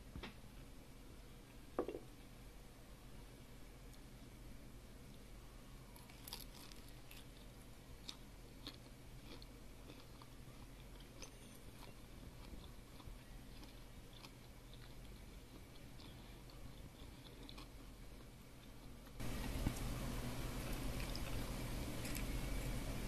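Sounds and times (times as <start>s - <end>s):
person chewing: 6.0s - 19.0s, 20.6s - 22.4s.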